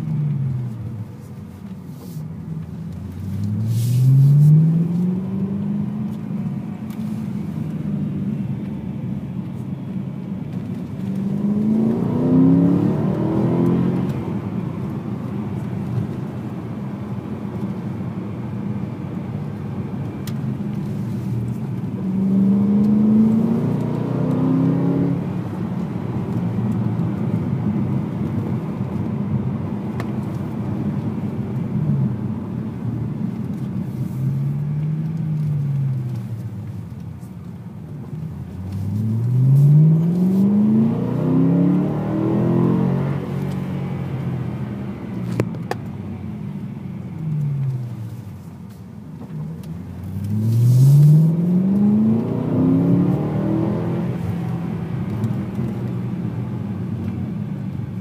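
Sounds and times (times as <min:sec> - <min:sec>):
car engine revving: 0:10.7 - 0:16.2, 0:20.2 - 0:29.3, 0:38.5 - 0:45.8, 0:49.6 - 0:57.1.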